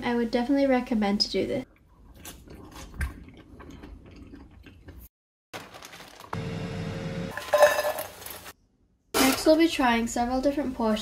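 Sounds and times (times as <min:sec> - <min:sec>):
person chewing crunchy chips: 0:01.9 - 0:05.0.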